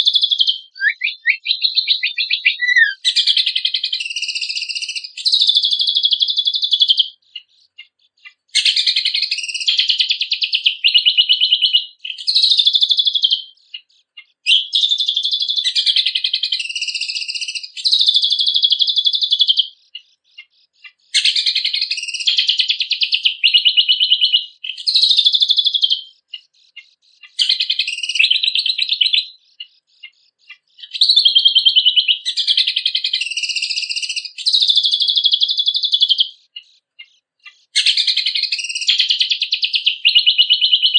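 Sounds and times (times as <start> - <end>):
songbird trilling: 0.0 - 40.9
bird single chirps: 0.2 - 5.4.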